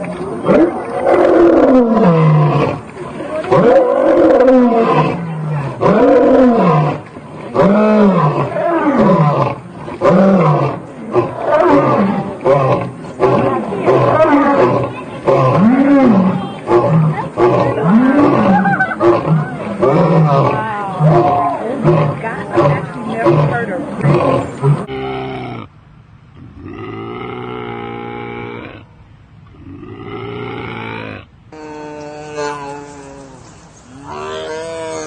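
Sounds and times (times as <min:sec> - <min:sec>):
lion roaring: 0:00.0 - 0:25.7.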